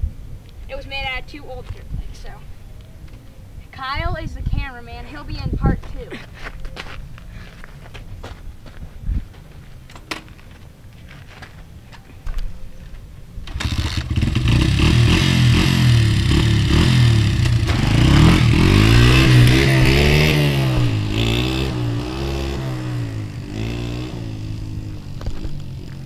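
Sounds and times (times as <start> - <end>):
dirt bike engine revving: 13.5 - 26.0.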